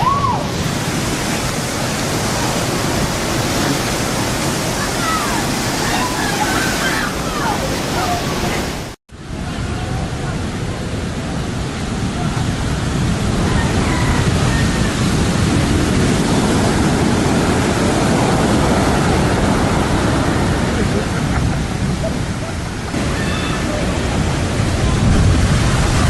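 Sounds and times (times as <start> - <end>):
breaking waves: 0.0 - 26.0
wind: 0.0 - 26.0
faint voices: 3.4 - 10.6.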